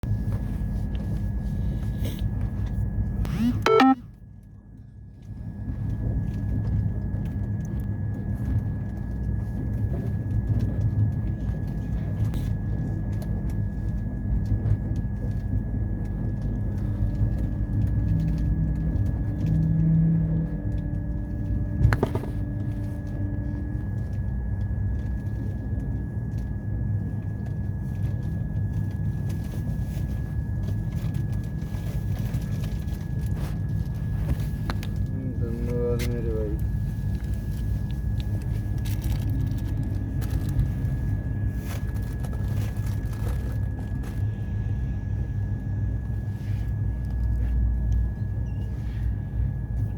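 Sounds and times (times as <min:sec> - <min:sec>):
faint held tone: 0:03.3 - 0:04.0
thin high whine: 0:03.3 - 0:04.0
train rumbling: 0:05.3 - 0:49.9.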